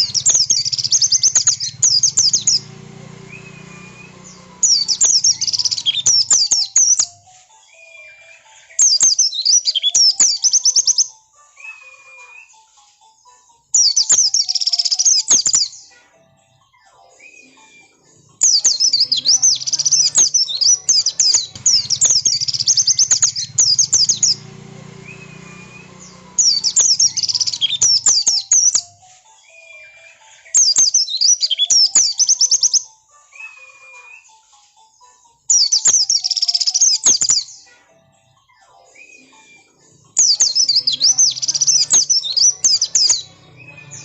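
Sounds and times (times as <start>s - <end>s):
bird twittering chirps: 0.0s - 7.1s, 18.3s - 28.8s, 30.6s - 32.8s, 35.5s - 37.6s, 40.1s - 44.0s.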